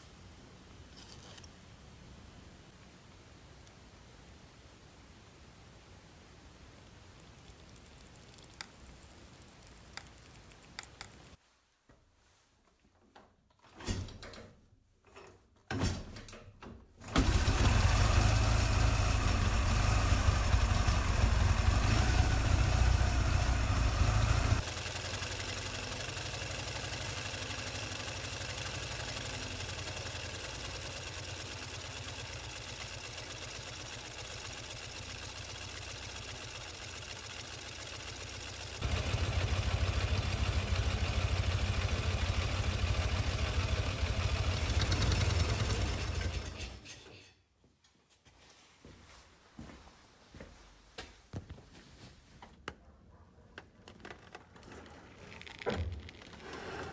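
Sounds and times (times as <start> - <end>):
motorcycle engine kick start: 17.0 - 46.8
motorcycle engine running: 17.2 - 46.6.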